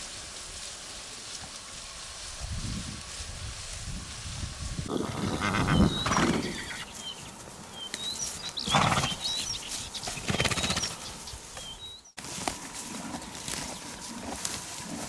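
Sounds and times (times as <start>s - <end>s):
small birds chirping: 4.9s - 12.2s, 12.9s - 14.2s.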